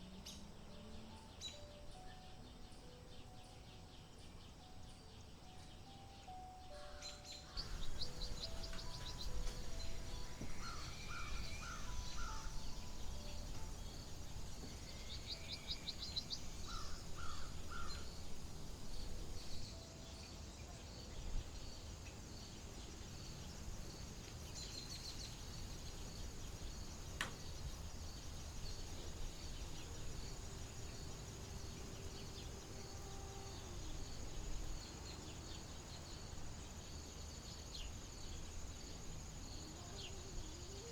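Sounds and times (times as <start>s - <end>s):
birds calling: 0.0s - 40.9s
high insect chirping: 0.0s - 40.9s
low wind-like rumble: 0.0s - 40.9s.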